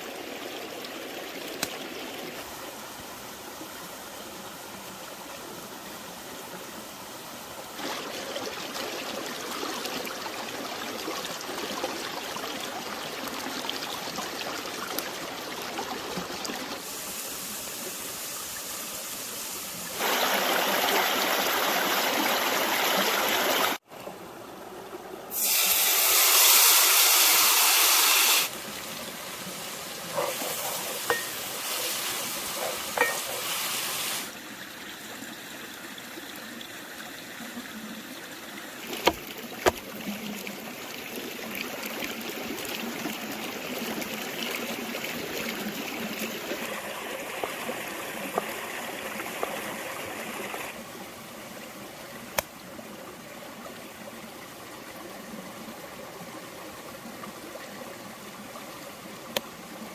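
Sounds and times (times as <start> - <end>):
rushing hissing noise: 25.3 - 28.6, 30.1 - 34.4.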